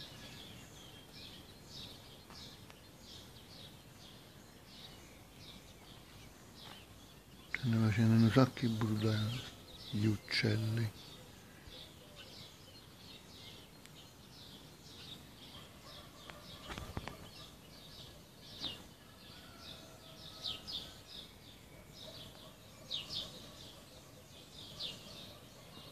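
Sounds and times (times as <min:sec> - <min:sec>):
birds chirping chorus: 0:00.0 - 0:25.9.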